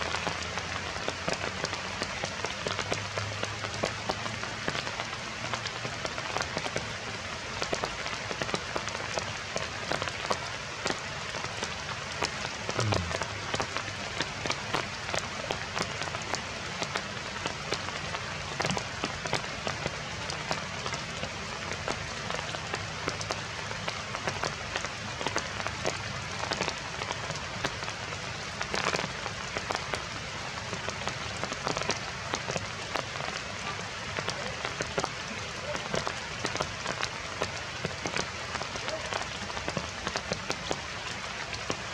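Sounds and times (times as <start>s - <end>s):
heavy rain: 0.0s - 41.9s
raindrops spattering: 0.0s - 41.9s
low falling tone: 12.8s - 13.4s.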